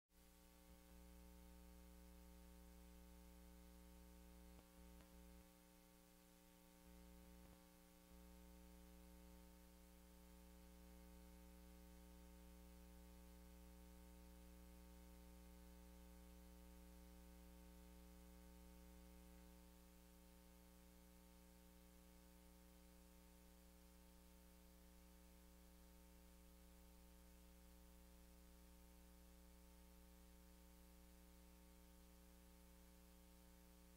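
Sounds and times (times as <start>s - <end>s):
electrical hum with hiss: 0.2s - 33.9s.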